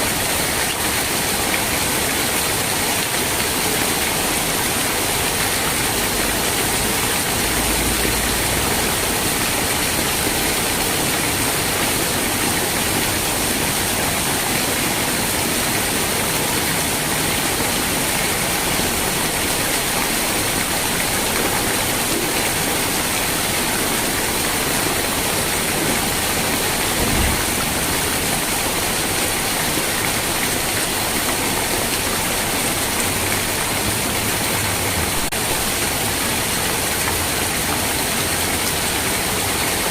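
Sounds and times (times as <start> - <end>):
rain falling: 0.0 - 39.9
low thump: 26.9 - 27.8.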